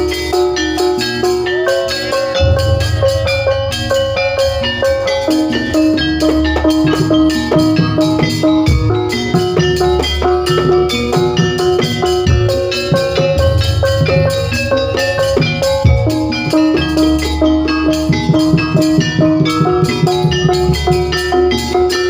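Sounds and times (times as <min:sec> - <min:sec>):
drums: 0:00.0 - 0:22.0
ringing metal percussion: 0:00.0 - 0:22.0
heavy booming bass: 0:02.4 - 0:07.5.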